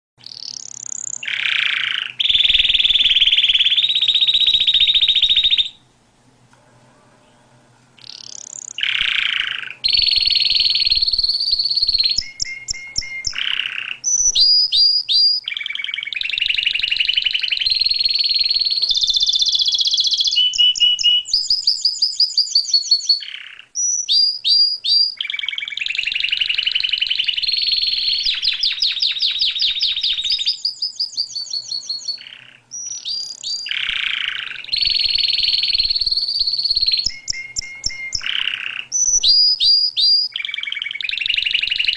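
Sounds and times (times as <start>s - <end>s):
songbird trilling: 0.2s - 5.8s, 8.0s - 41.9s.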